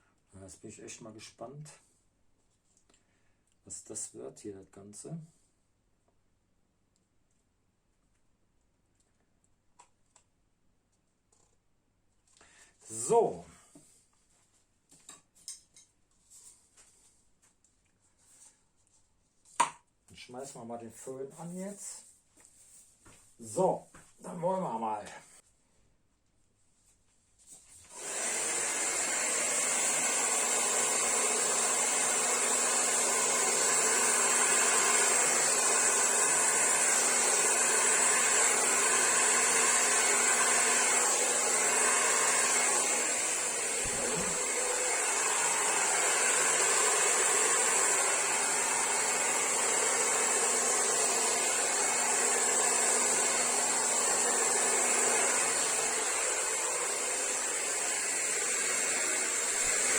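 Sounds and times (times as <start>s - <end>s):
hair dryer running: 27.9s - 59.9s.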